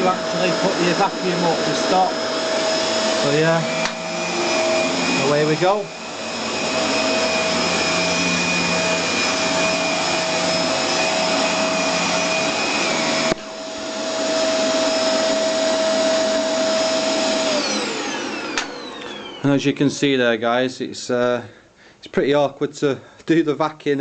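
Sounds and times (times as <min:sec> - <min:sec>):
vacuum cleaner running: 0:00.0 - 0:20.2
vacuum cleaner click: 0:00.4 - 0:13.5, 0:17.4 - 0:19.4.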